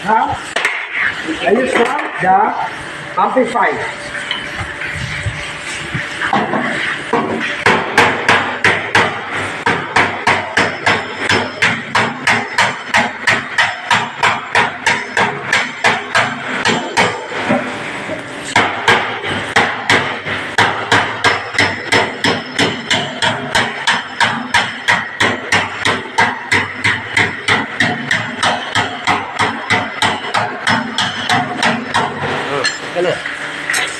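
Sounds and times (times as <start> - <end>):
hammer striking steel panel: 0.5 - 0.9, 6.3 - 17.4, 18.5 - 32.3.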